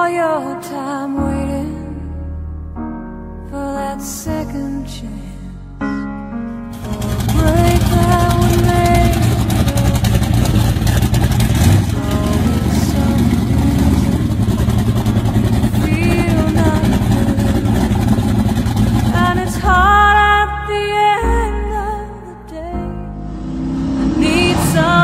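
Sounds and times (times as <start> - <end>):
car engine running loudly: 6.8 - 19.7, 23.2 - 25.0.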